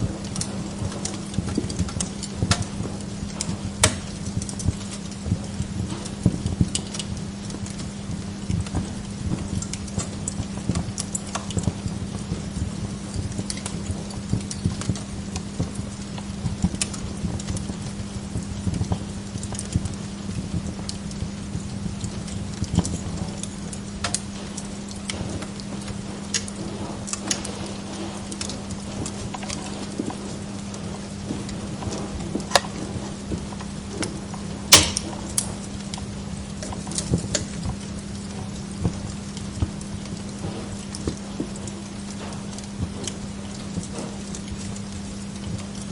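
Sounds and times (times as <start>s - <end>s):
steady low hum: 0.0s - 45.9s
wood fire crackling: 0.0s - 45.9s
loud sharp pop: 34.8s - 35.1s.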